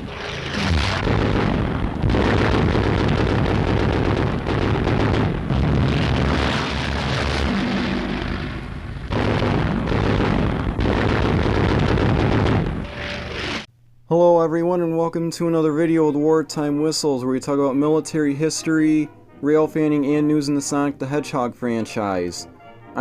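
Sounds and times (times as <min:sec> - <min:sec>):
continuous low rumble: 0:00.0 - 0:13.7
explosions: 0:00.0 - 0:13.7
gunfire: 0:00.0 - 0:13.7.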